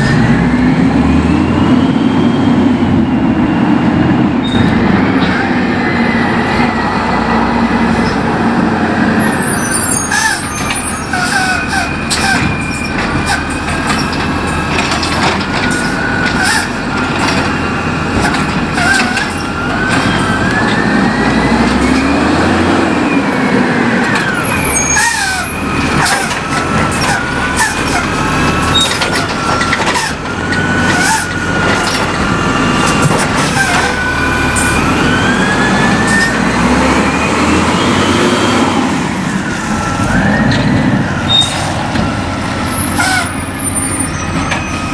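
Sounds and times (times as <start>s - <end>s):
truck engine running: 0.0s - 44.9s
high squeals and whines: 4.4s - 44.9s
clanks and clatter: 10.3s - 20.8s, 25.0s - 34.0s.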